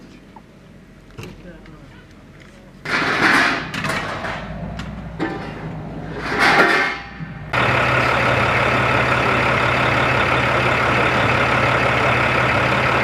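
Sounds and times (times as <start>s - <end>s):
large engine humming: 3.8s - 13.0s.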